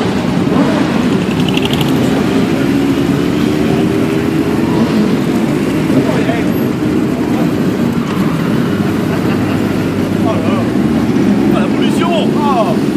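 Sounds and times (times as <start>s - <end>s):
motorcycle engines riding past: 0.0s - 12.9s.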